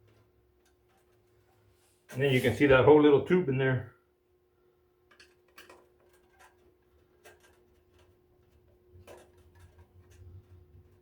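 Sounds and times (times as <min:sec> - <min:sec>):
faint steady hum: 0:00.0 - 0:11.0
plastic parts clicking and tapping: 0:05.1 - 0:10.3.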